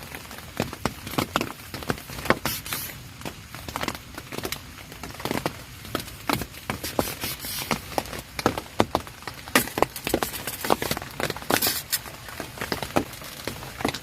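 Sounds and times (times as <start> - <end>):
light hiss of rain: 0.0 - 14.0
raindrops tapping on a tent: 0.0 - 14.0.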